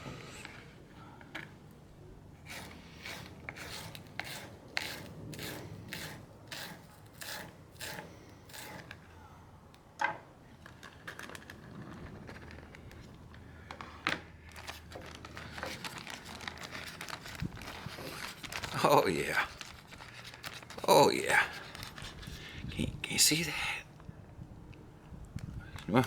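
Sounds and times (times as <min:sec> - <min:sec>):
knife cutting green onion: 0:02.5 - 0:09.0.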